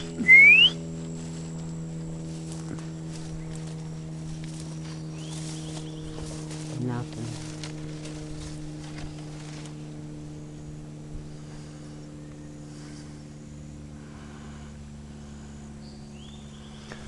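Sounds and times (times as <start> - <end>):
short rising whistle: 0.0 - 0.8
low hum of held tones: 0.0 - 17.0.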